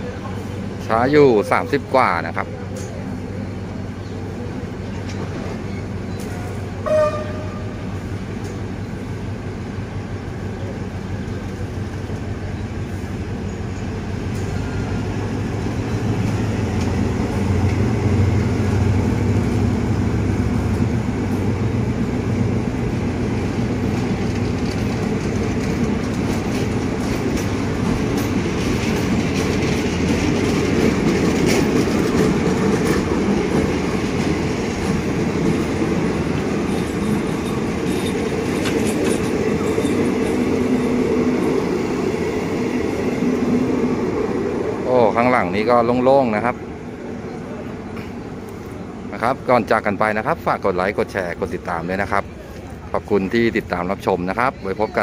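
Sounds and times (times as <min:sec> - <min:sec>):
train wheels rumbling and clattering: 0:00.0 - 0:55.0
train horn toot: 0:06.4 - 0:07.8.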